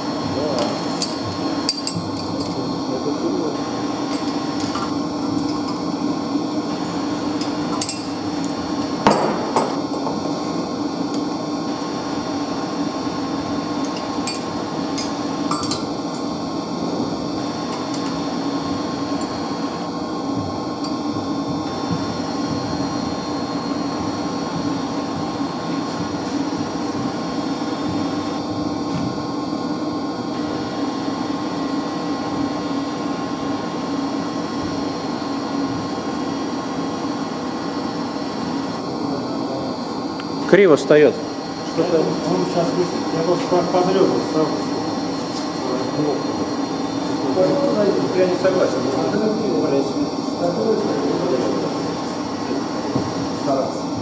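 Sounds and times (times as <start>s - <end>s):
machinery humming: 0.0s - 54.0s.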